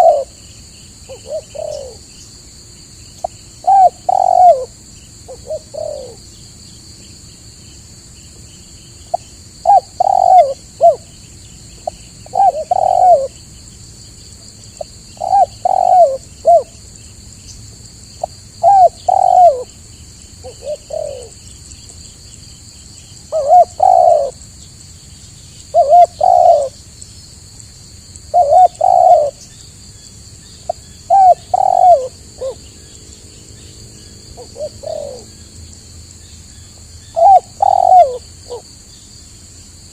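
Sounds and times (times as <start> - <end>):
dove cooing: 0.0 - 0.4, 1.1 - 2.2, 3.2 - 6.2, 9.1 - 11.1, 11.8 - 13.4, 14.8 - 16.8, 18.2 - 19.8, 20.4 - 21.4, 23.3 - 24.4, 25.7 - 26.8, 28.3 - 29.5, 30.7 - 32.7, 34.3 - 35.4, 37.1 - 38.6.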